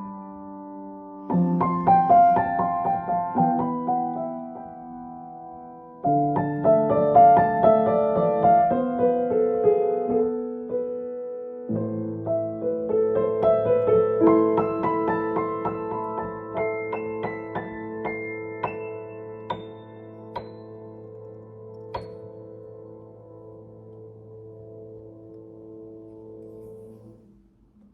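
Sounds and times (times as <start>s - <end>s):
solo piano playing: 0.0s - 27.9s.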